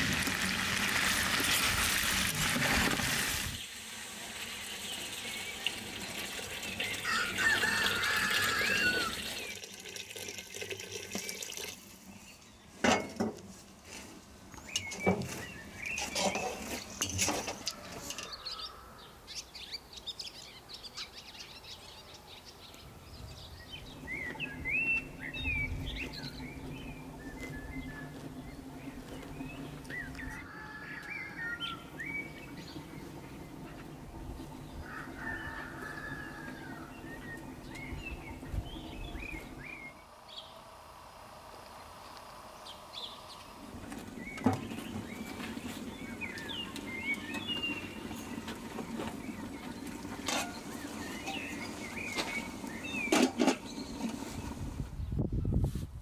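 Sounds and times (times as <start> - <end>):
small birds chirping: 41.7 - 55.4.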